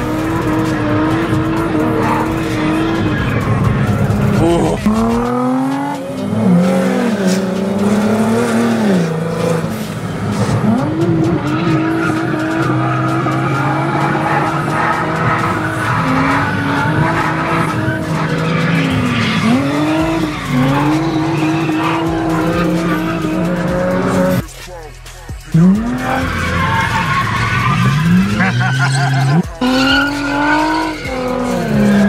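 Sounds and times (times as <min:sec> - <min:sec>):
car engine at high revs: 0:00.0 - 0:24.4, 0:25.5 - 0:32.0
tyres squealing: 0:10.5 - 0:24.5, 0:25.6 - 0:32.0.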